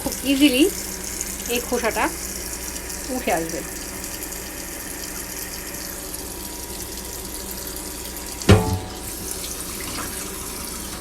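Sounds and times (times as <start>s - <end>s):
tap water running into sink: 0.0s - 11.0s
sharp metallic clank: 8.5s - 9.2s.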